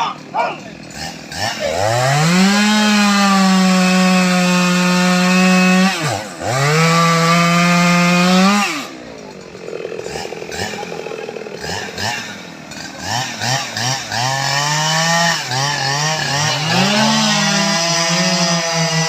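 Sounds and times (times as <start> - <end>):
chainsaw revving and idling: 0.0 - 19.0.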